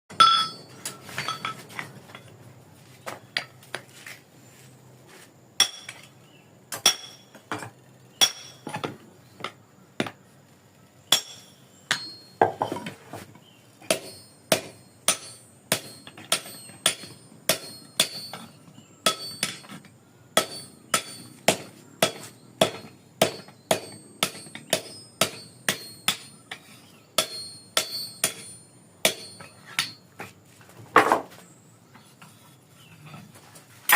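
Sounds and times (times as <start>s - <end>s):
hammer striking steel: 0.1s - 1.6s, 5.6s - 6.0s, 6.8s - 7.3s, 8.2s - 8.7s, 11.1s - 12.4s, 13.9s - 19.8s, 20.4s - 30.0s.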